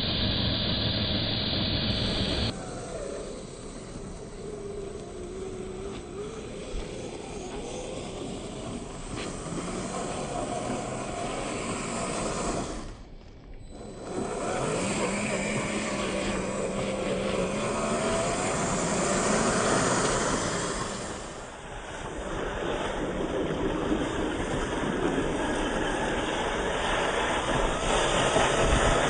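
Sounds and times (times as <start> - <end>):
electric motor whining: 0.0 - 21.5
steady rush of noise: 0.0 - 29.0.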